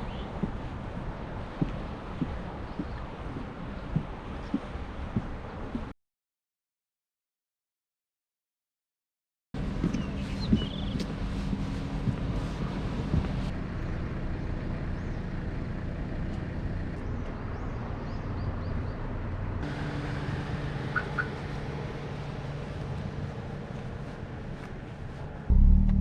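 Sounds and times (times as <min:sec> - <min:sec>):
tyre and road noise: 0:00.0 - 0:05.9, 0:09.6 - 0:26.0
car engine running: 0:25.5 - 0:26.0.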